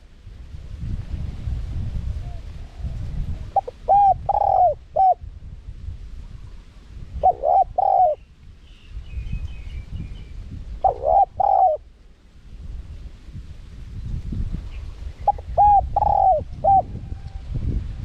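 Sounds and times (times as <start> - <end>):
dove cooing: 2.2 - 5.2, 7.1 - 8.2, 10.8 - 11.9, 15.2 - 17.5.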